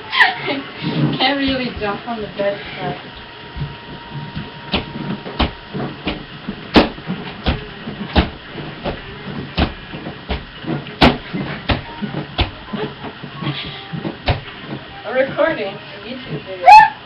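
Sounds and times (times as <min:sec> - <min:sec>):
mattress springs creaking: 0:00.0 - 0:16.7
thumps of bouncing on a bed: 0:04.4 - 0:15.4.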